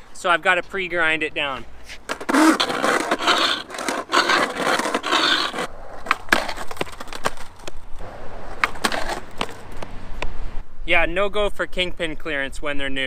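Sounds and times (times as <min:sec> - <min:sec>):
skateboard trucks grinding concrete: 0:01.8 - 0:09.9
skateboard clacks: 0:02.1 - 0:09.9.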